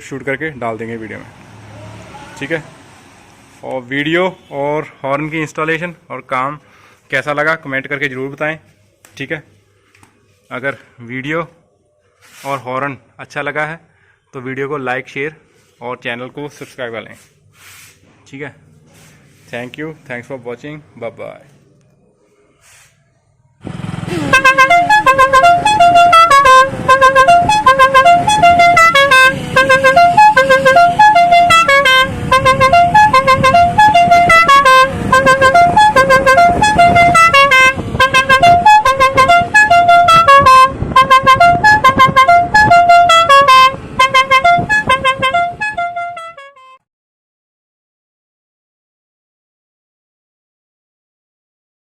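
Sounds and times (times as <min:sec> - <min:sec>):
musical air horn playing tune: 0:24.1 - 0:46.8.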